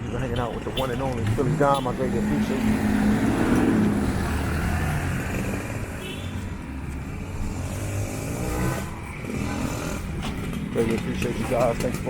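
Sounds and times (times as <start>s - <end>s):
vehicle engine revving: 1.1s - 6.0s, 7.0s - 11.6s.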